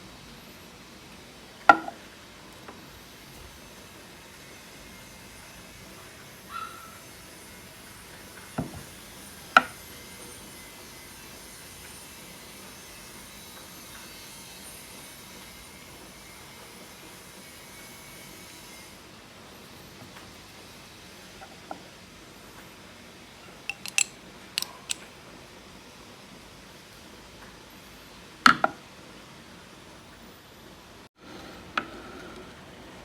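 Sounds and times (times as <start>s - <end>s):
hard object knocking: 23.7s - 25.0s.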